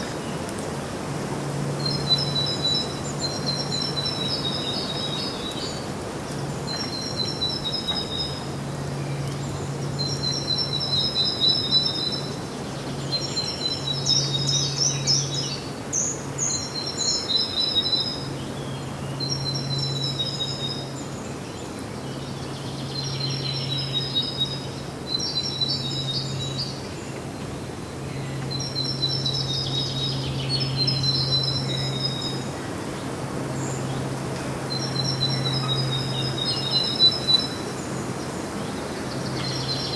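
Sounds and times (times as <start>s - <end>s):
outdoor noise: 0.0s - 39.9s
songbird trilling: 28.0s - 39.9s.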